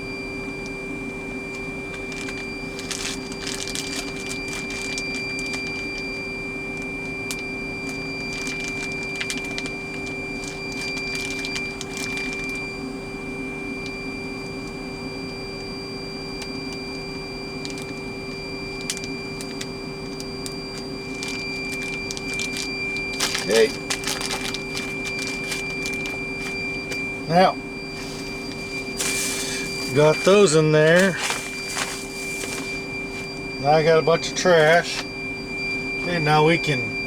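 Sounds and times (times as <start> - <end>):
electrical hum with high whine: 0.0 - 37.0
plastic bags crinkling: 1.9 - 6.2, 7.2 - 12.6, 18.8 - 27.1, 27.8 - 35.2.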